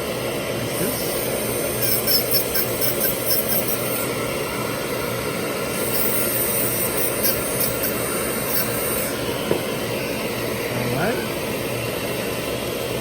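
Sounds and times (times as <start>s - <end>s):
dental handpiece running: 0.8s - 4.1s, 5.7s - 9.4s.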